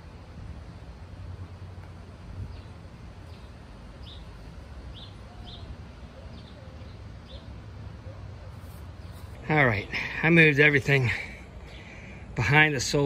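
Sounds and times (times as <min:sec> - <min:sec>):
low steady rumble: 0:00.0 - 0:13.0
small bird chirping: 0:02.5 - 0:04.3, 0:04.9 - 0:09.4.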